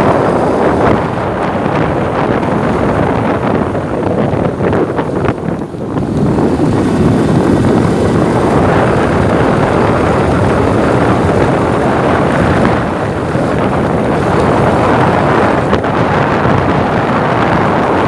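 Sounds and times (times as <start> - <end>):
motorcycle engine running: 0.0 - 18.0
wind rushing on microphone: 0.0 - 18.0.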